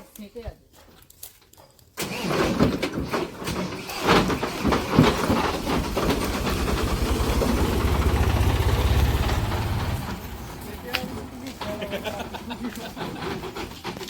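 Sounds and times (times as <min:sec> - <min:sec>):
loud metal clanks and knocks: 0:02.5 - 0:07.6
tractor engine chugging: 0:03.8 - 0:14.0.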